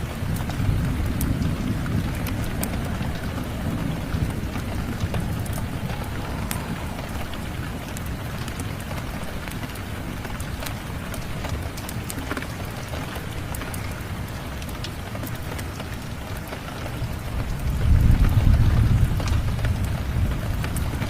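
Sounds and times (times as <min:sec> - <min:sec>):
thunder rumbling: 0:00.0 - 0:14.4
wood fire crackling: 0:00.0 - 0:18.0
steady rain: 0:00.0 - 0:21.0.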